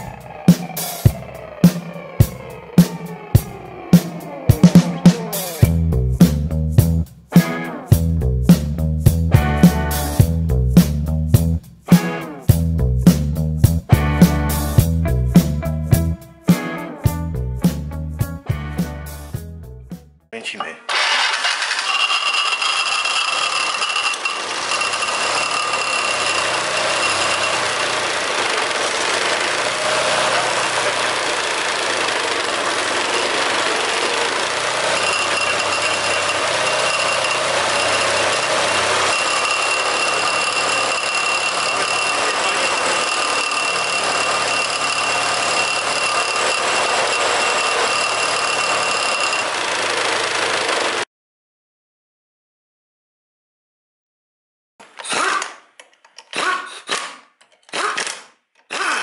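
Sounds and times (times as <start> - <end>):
scooter engine idling: 24.4 - 40.8, 48.0 - 51.0.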